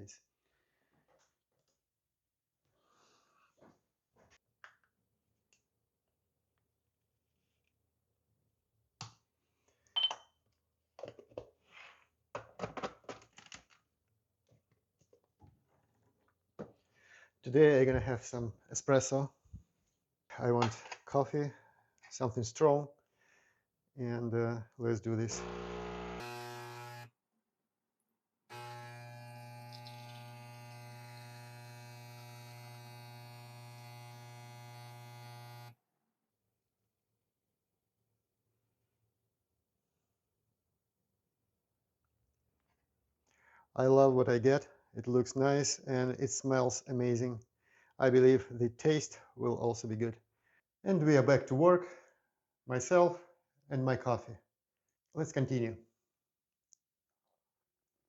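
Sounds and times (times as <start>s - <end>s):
short beep: 10.0s - 10.3s
clicks and taps of objects handled: 11.0s - 11.5s
espresso machine pump humming: 25.4s - 26.3s.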